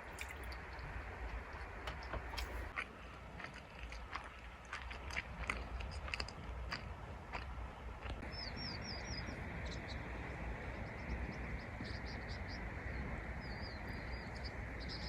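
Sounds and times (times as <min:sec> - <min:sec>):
small birds chirping: 0:08.0 - 0:15.0.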